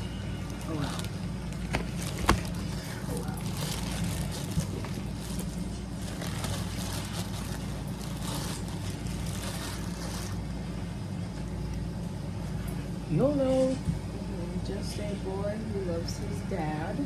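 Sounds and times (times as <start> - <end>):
low mechanical hum: 0.0 - 17.0
plastic packaging crinkling: 0.4 - 10.6.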